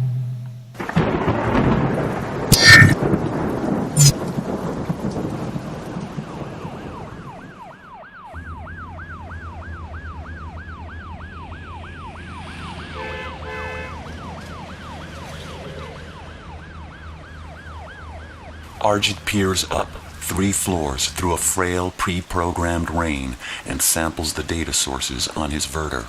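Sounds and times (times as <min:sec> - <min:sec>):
emergency siren wailing: 0:05.8 - 0:21.6.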